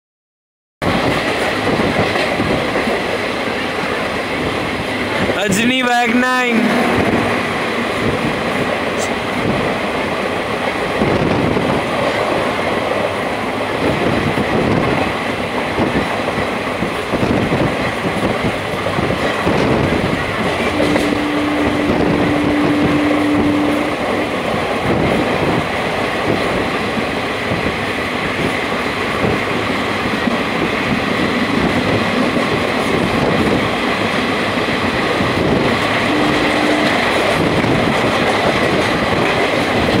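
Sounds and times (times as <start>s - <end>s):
train wheels rumbling and rattling: 0.8s - 40.0s.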